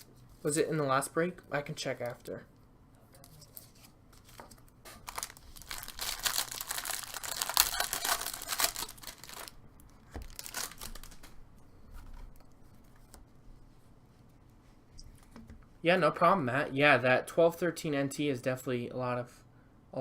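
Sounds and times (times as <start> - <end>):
plastic wrapping crinkling and tearing: 3.3 - 11.4.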